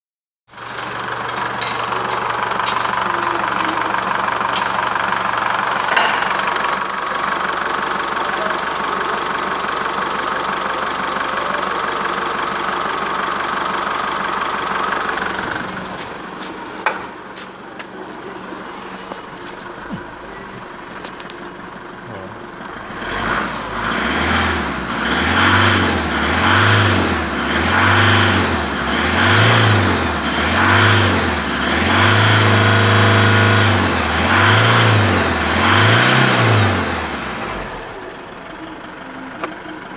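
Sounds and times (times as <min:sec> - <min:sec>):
diesel engine running and revving: 0:00.5 - 0:39.9.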